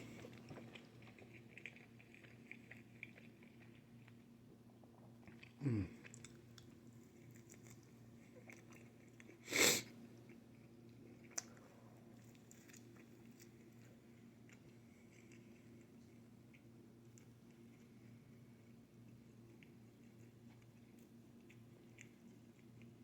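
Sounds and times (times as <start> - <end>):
person chewing: 0.0 - 4.2, 5.2 - 15.9.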